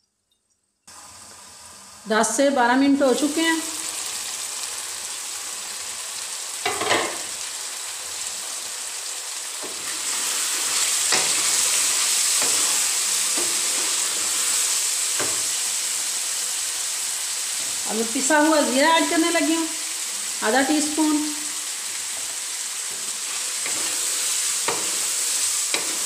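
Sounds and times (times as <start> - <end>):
vegetables sizzling in a pan: 0.9 - 26.0
wooden spatula scraping pan: 9.6 - 15.4.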